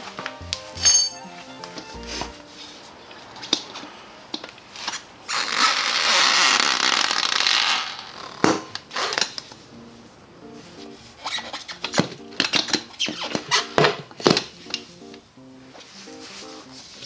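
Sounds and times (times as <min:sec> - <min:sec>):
metal tools clinking: 0:00.8 - 0:01.2.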